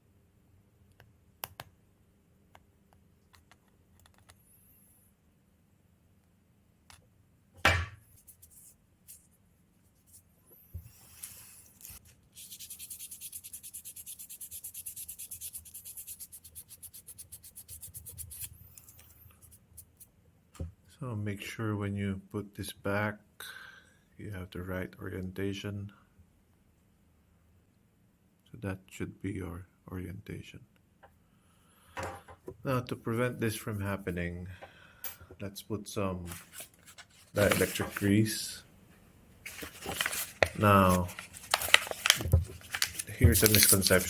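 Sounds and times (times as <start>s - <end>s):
sandpaper rubbing on metal: 11.2s - 18.5s.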